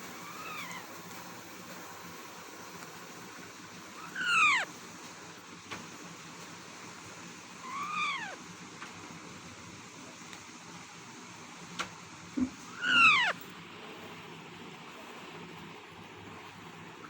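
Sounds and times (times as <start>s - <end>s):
parakeet call: 0.1s - 0.9s, 4.0s - 4.7s, 7.6s - 8.4s, 12.6s - 13.4s.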